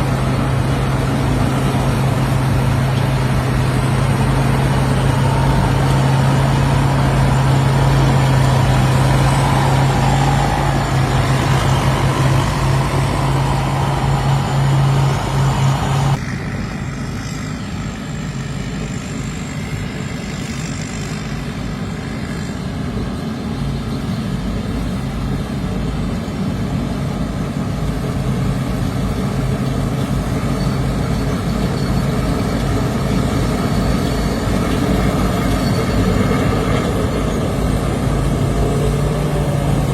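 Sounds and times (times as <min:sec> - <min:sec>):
combine harvester engine hum: 0:00.0 - 0:39.9.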